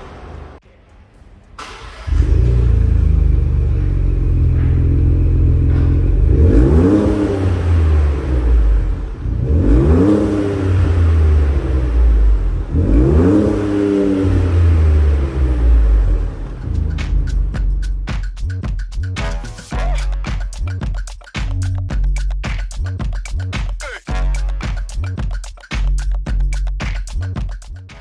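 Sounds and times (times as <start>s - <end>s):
car engine starting and revving: 1.6s - 18.1s.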